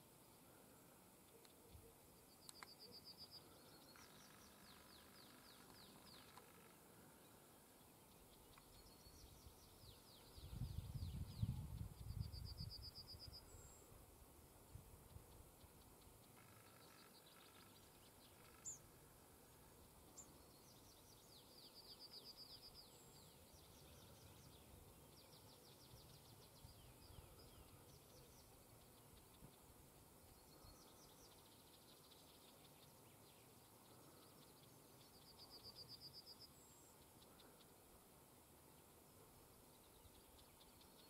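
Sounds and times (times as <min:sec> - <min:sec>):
bird chirps: 0:01.2 - 0:07.3, 0:15.0 - 0:18.9, 0:20.1 - 0:37.8.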